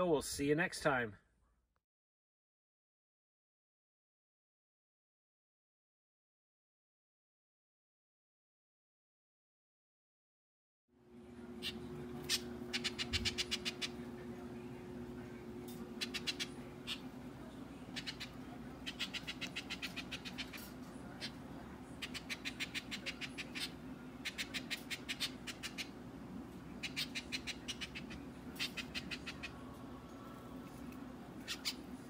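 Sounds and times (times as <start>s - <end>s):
steady low hum: 11.0s - 32.0s
orioles chattering: 11.4s - 32.0s.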